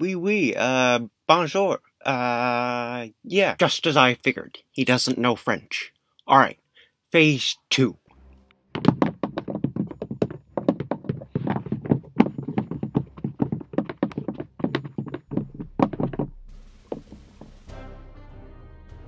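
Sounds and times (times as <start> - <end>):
light tapping footsteps: 8.7 - 17.7.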